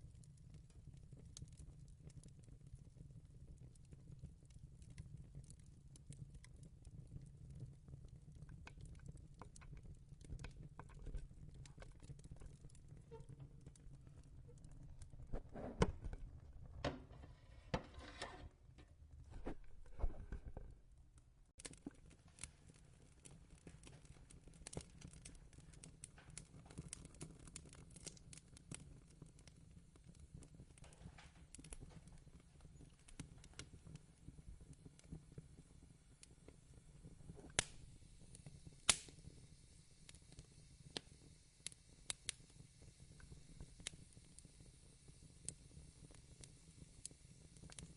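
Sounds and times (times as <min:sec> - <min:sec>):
fireplace crackling: 0:00.2 - 0:44.5, 0:45.2 - 0:47.9
rustling and knocking handling noises: 0:15.3 - 0:20.8.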